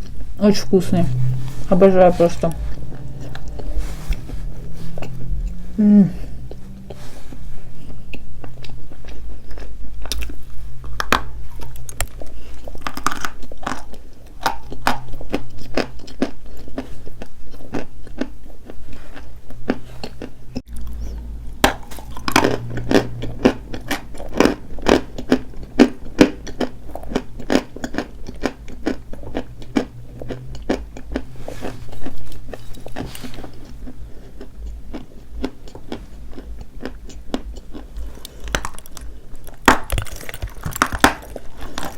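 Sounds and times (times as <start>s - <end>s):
chalk crunching and chewing: 21.8s - 41.9s.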